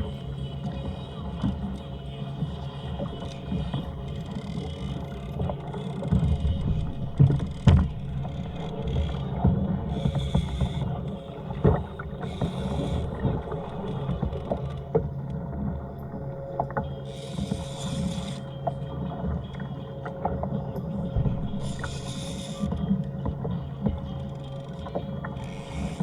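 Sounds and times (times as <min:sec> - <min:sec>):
water splashing against kayak hull: 0:00.0 - 0:26.0
low rumble: 0:02.0 - 0:16.7.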